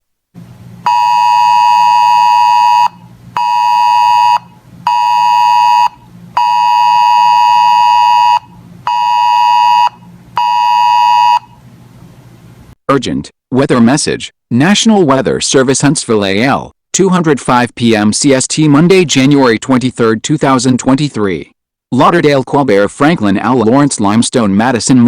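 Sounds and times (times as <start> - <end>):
weather alert radio beeps: 0.9 - 11.6.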